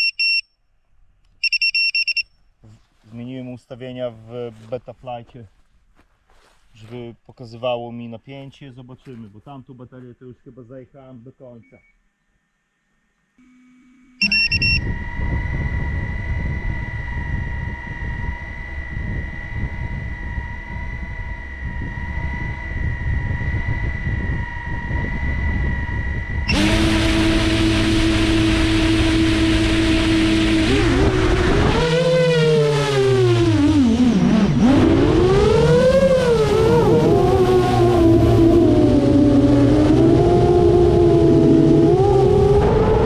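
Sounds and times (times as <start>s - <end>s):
drone motors whining: 13.4s - 43.0s.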